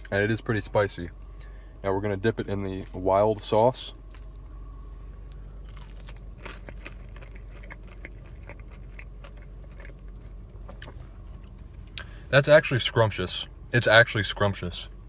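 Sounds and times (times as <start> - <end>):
low hum: 0.0 - 15.0
chewing crispy fried chicken: 2.4 - 12.2.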